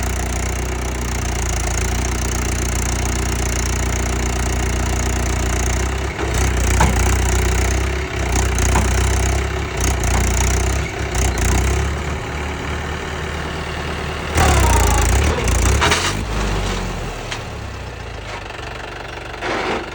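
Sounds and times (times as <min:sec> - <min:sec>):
tractor diesel engine running: 0:00.0 - 0:19.9.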